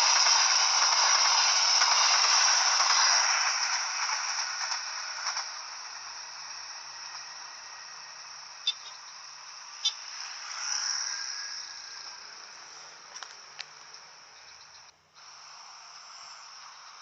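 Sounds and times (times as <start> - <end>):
passing train rattle: 0.0 - 17.0
insects chirring: 5.1 - 17.0
sharp clicks: 8.6 - 9.2.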